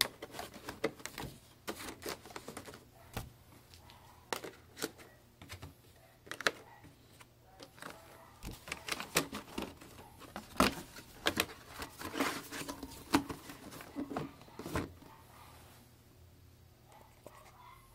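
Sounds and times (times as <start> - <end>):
packaging rustling: 0.0 - 2.8, 7.6 - 15.1.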